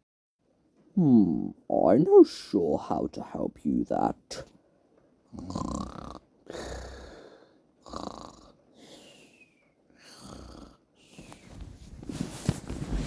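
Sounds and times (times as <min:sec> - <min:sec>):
person snoring: 0:05.3 - 0:11.3.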